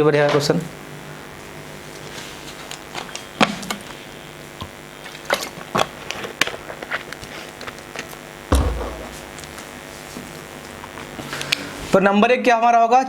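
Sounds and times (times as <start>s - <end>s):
heavy low thump: 8.5s - 9.5s.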